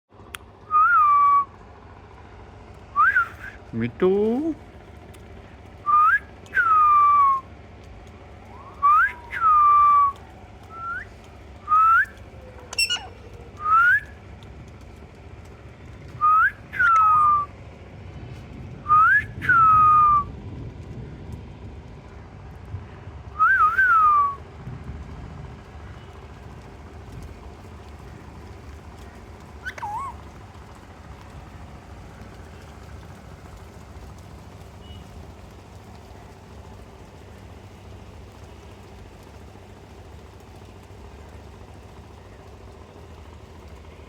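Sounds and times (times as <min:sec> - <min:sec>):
parrot whistling: 0:05.9 - 0:07.4, 0:08.6 - 0:11.1, 0:11.7 - 0:14.1, 0:16.2 - 0:17.5, 0:23.4 - 0:24.4, 0:29.6 - 0:30.2.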